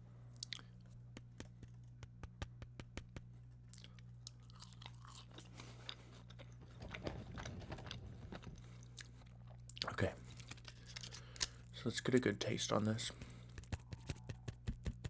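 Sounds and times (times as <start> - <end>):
steady low hum: 0.0 - 15.0
chewing fries: 0.3 - 0.9, 3.6 - 11.7
wet mouth clicks: 0.3 - 1.5.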